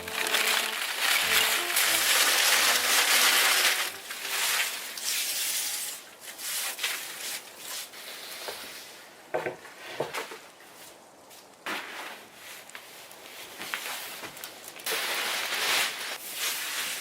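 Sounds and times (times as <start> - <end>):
faint music notes: 0.0 - 5.0
crunching crushing noise: 0.0 - 5.2.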